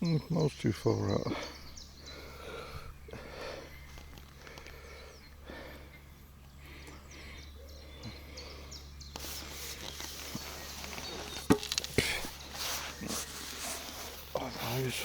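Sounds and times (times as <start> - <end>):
faint bird chirps: 0.0 - 15.0
sharp knocks: 11.4 - 11.9.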